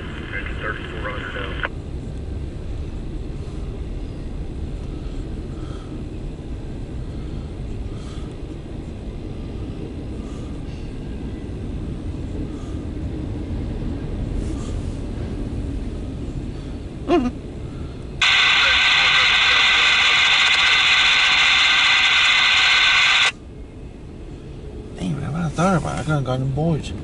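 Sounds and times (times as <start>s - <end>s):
wheels rumbling on rail: 1.8s - 18.2s.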